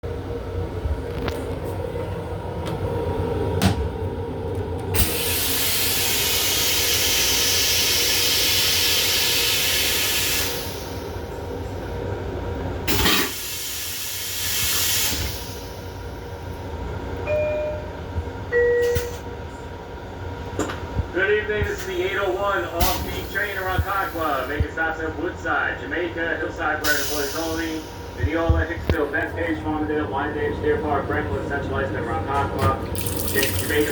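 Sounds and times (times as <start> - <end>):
train hum: 0.0 - 33.9
toilet flushing with hissing rush: 5.0 - 11.3, 12.9 - 16.4, 32.9 - 33.9.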